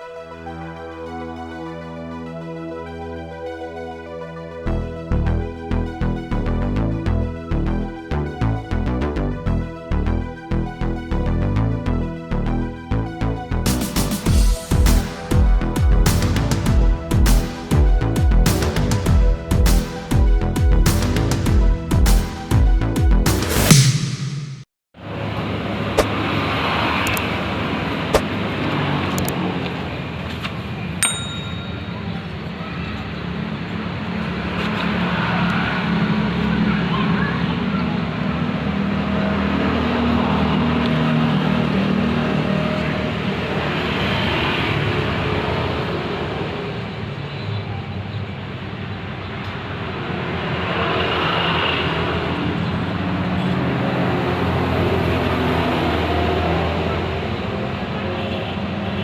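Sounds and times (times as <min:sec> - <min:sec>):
ringing metallic clang: 0:31.0 - 0:32.1.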